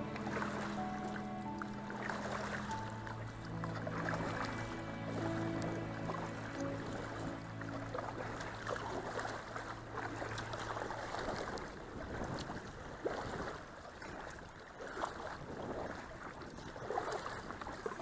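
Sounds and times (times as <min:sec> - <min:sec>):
kayak paddle strokes splashing: 0:00.0 - 0:18.0
water washing along hull: 0:00.0 - 0:18.0
wind on microphone: 0:09.9 - 0:18.0.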